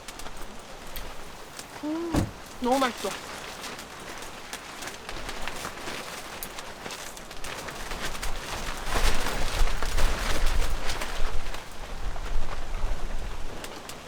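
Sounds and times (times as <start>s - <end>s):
steady hiss: 0.0s - 4.4s.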